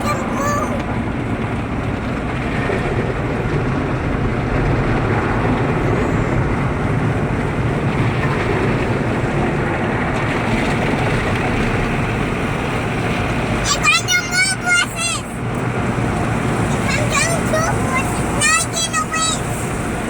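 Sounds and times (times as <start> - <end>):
car wash brushes and water spray: 6.5 - 20.0.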